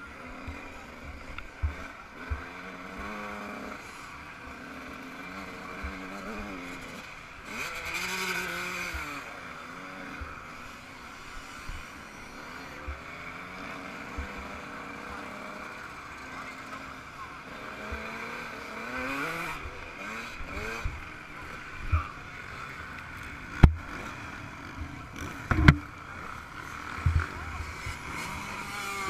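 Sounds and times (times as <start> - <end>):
two-stroke motorcycle engine revving: 0.0 - 29.0
short low thumps: 25.5 - 25.9.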